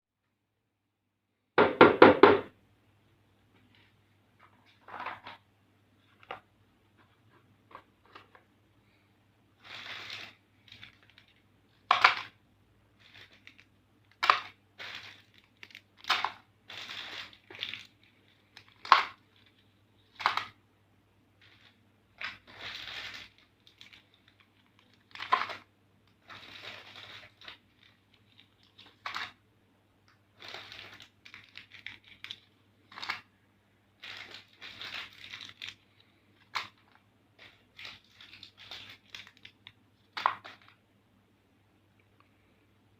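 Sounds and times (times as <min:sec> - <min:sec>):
faint low hum: 0:02.4 - 0:42.9
plastic packaging crinkling: 0:09.6 - 0:20.6, 0:21.4 - 0:29.4, 0:30.2 - 0:40.8.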